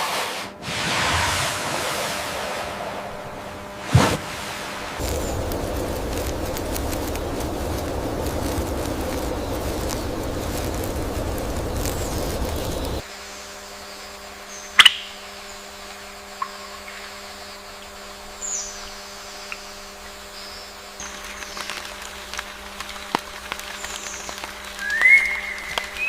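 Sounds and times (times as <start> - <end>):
steady rushing noise: 0.0 - 13.1
faint steady hum: 0.5 - 26.0
birds chirping: 4.7 - 13.0, 20.2 - 26.0.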